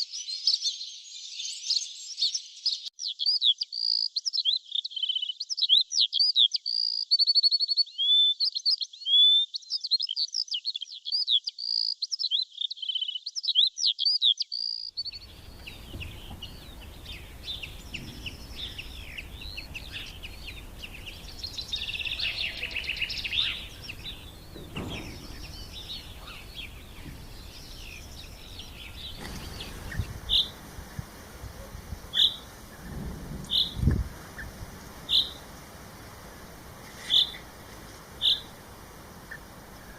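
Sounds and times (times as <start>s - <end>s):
small songbirds chirping: 0.0s - 39.9s
background hiss: 15.0s - 39.9s.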